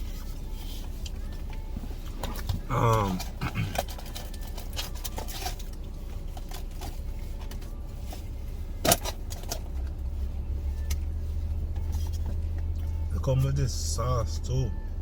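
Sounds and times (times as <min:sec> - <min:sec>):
steady low hum: 0:00.0 - 0:15.0
food containers clicking and rustling: 0:01.0 - 0:10.0.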